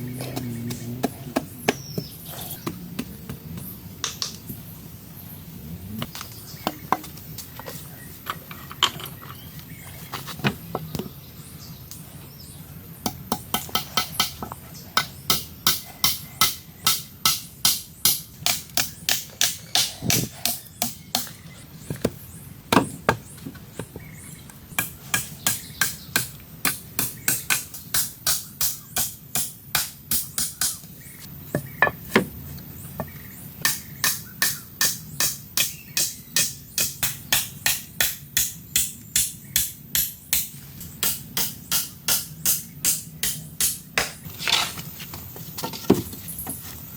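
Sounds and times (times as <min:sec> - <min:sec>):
tool striking wood: 0:31.5 - 0:32.4.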